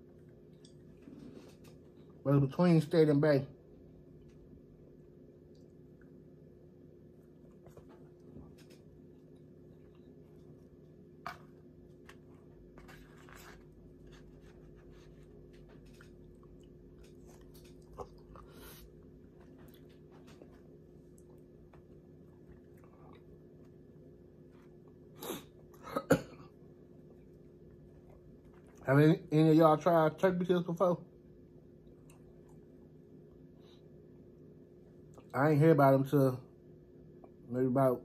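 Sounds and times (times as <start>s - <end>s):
steady low hum: 0.0s - 38.0s
person chewing food: 7.1s - 25.8s, 26.8s - 28.8s, 31.8s - 33.0s.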